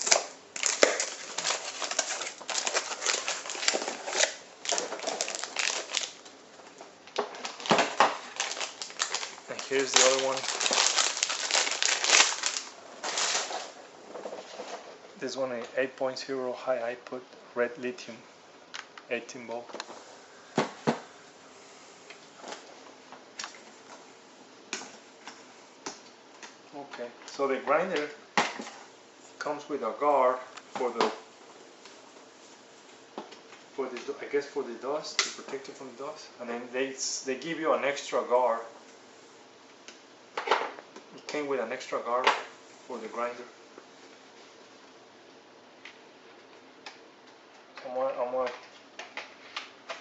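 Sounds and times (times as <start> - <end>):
plastic bag crinkling: 0.0 - 6.4, 7.2 - 14.7.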